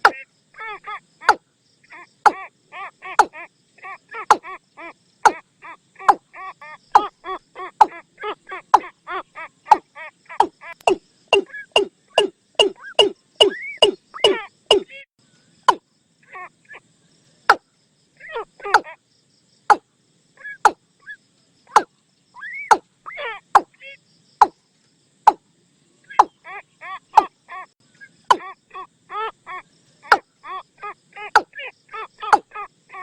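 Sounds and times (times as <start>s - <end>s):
bird knocking calls: 0.0s - 0.2s, 2.2s - 2.5s, 3.2s - 3.4s, 4.2s - 4.5s, 5.2s - 5.4s, 8.7s - 8.9s, 10.4s - 15.0s, 18.6s - 18.9s, 20.6s - 20.8s, 21.7s - 21.9s, 22.6s - 22.8s, 23.6s - 23.8s, 26.1s - 26.4s, 28.3s - 28.5s, 31.3s - 31.6s, 32.2s - 32.6s
quick pitched bird calls: 0.0s - 15.8s, 17.4s - 19.0s, 20.4s - 24.6s, 26.0s - 33.0s.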